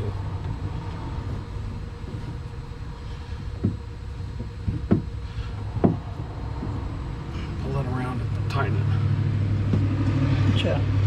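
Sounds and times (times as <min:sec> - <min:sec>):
drill motor humming: 0:00.0 - 0:11.0
short knocks: 0:03.4 - 0:06.9.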